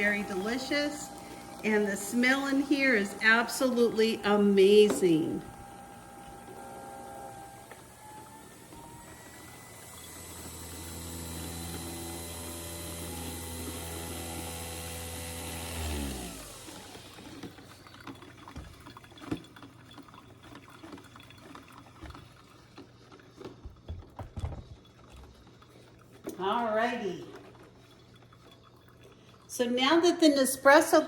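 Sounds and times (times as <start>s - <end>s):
coffee machine humming and hissing: 0.0s - 18.7s.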